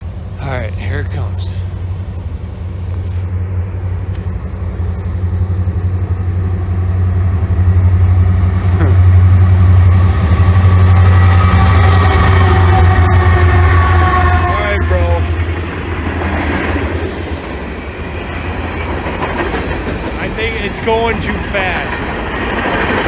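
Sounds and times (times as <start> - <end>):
high whining wheels: 0.0 - 23.0
train passing with low drone: 0.0 - 23.0.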